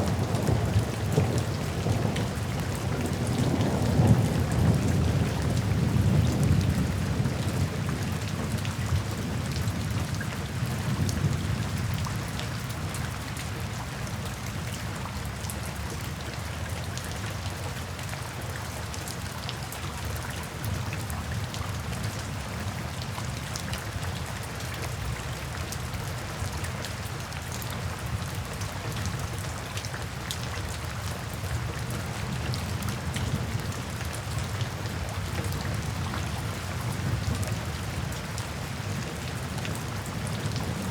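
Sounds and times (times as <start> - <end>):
soft thunder rumble: 0.0 - 10.0
steady rain falling: 0.0 - 40.9.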